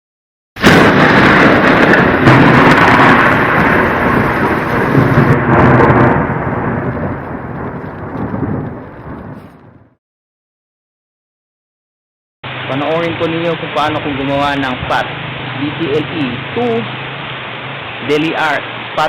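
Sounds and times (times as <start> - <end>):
loud rumbling crash: 0.6 - 10.0.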